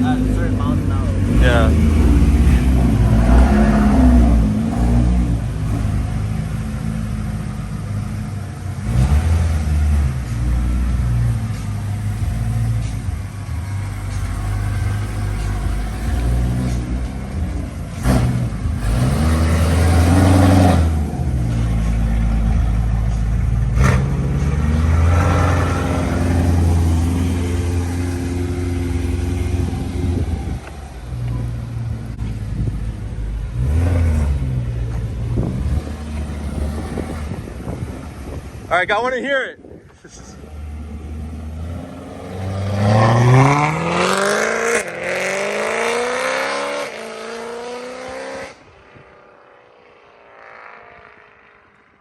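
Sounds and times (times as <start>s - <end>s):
car engine revving: 0.0s - 39.2s, 40.0s - 52.0s.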